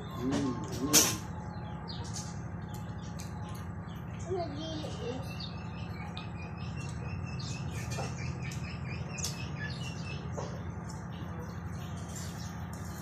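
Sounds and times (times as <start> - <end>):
birds chirping: 0.0 - 13.0
steady low hum: 0.0 - 13.0.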